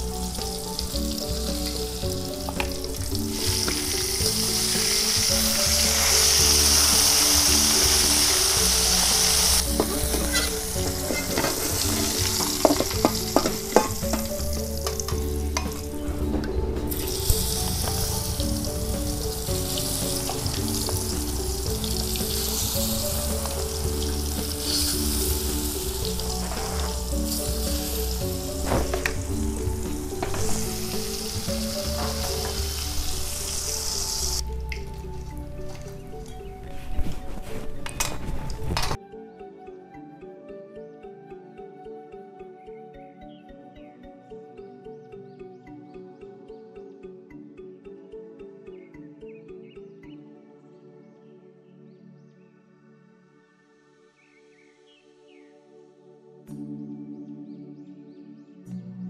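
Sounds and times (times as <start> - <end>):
fish deep-frying in oil: 0.2 - 15.9, 16.9 - 34.9.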